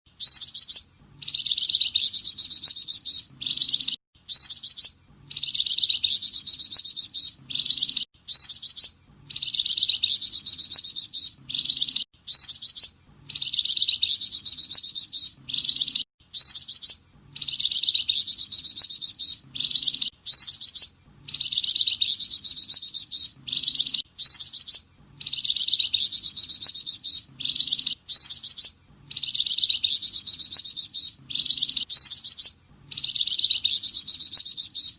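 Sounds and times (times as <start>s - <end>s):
songbird singing trilled phrases: 0.2s - 34.9s.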